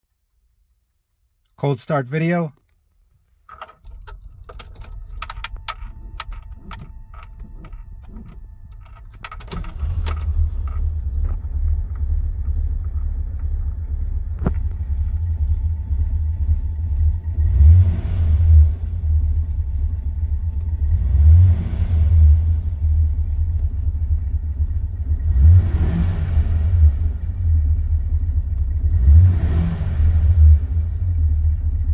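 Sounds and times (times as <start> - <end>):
car engine starting and idling: 1.6 - 31.9
keys jangling and clicking: 3.4 - 10.8
engine revving: 14.2 - 31.9.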